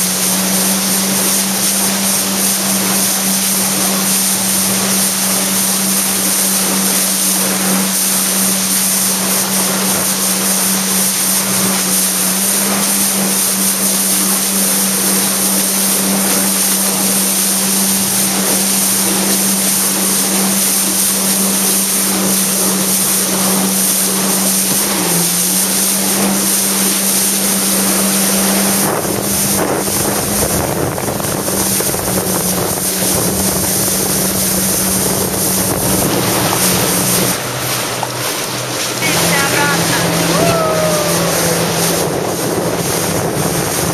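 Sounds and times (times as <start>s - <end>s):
jet ski engine running: 0.0s - 43.9s
wind rushing over microphone: 28.5s - 38.0s, 40.1s - 43.9s.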